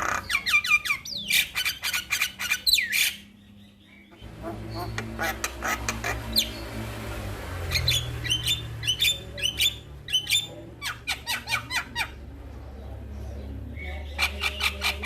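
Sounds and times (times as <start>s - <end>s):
bird whistling and calling: 0.0s - 3.3s, 7.7s - 12.1s
steady low hum: 3.3s - 10.8s.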